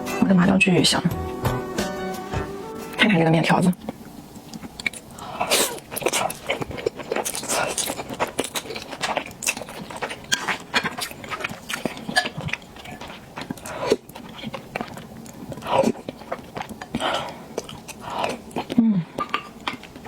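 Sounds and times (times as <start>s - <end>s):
chewing: 3.6s - 20.0s
sticky noodle eating smacks: 3.7s - 20.0s.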